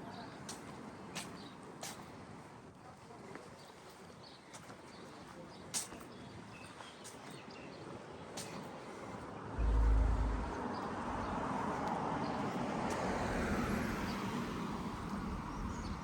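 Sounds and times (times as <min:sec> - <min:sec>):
car passing: 0:09.5 - 0:16.0
brief low rumble: 0:09.6 - 0:11.6.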